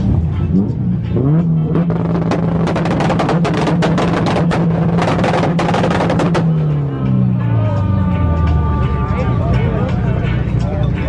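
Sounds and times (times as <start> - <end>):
car engine at rev limiter: 0.0 - 7.2
background music with beat: 0.0 - 11.0.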